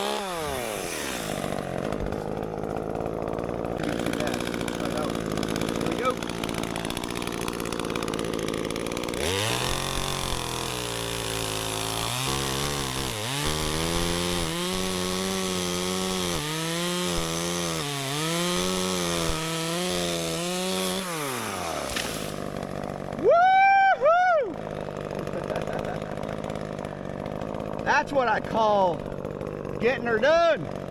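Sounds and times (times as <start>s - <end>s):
chainsaw cutting wood: 0.0s - 30.9s.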